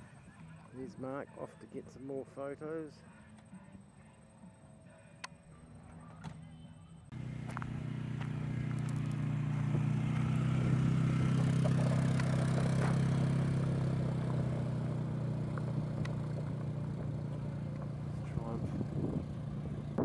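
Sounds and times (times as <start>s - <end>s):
motorcycle engine running: 7.1s - 20.0s.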